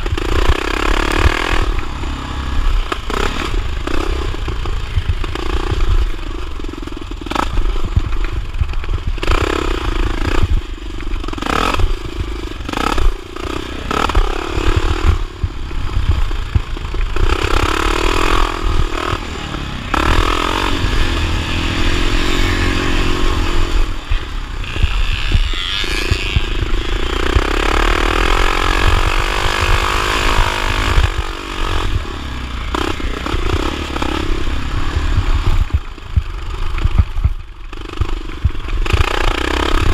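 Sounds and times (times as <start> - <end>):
constant low rumble: 0.0 - 39.9
motorcycle engine revving: 0.0 - 39.9.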